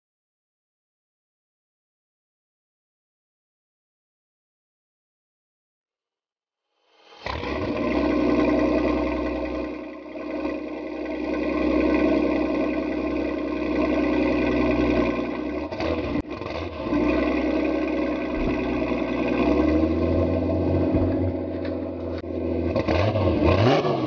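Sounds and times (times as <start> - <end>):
sports car engine running: 7.2 - 24.0.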